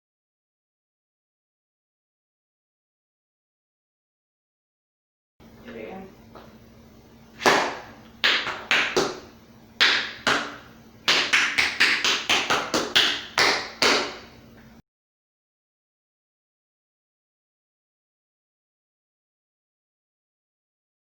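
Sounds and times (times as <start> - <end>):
tap shoes striking floor: 7.4 - 14.3.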